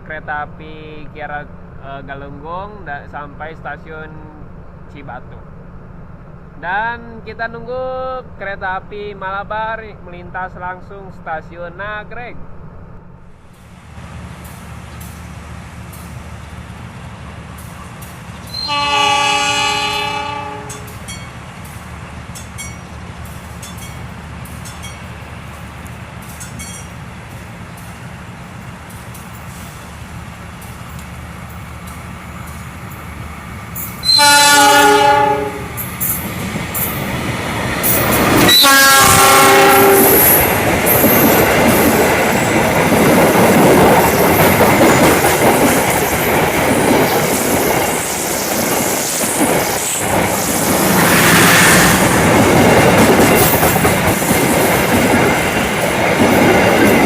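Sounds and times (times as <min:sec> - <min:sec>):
train rumbling and wheel clatter: 0:00.0 - 0:57.0
train horn blasts: 0:18.5 - 0:20.9, 0:34.0 - 0:35.8, 0:38.4 - 0:40.4.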